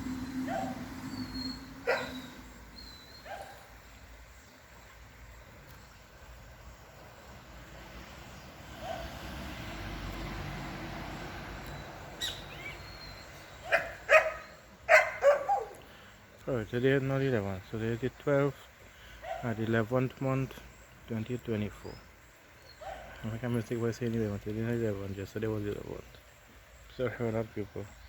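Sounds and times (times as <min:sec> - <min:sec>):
dog barking loudly: 0:00.5 - 0:00.9, 0:01.8 - 0:02.4, 0:13.6 - 0:15.8, 0:19.2 - 0:19.6, 0:22.8 - 0:23.2.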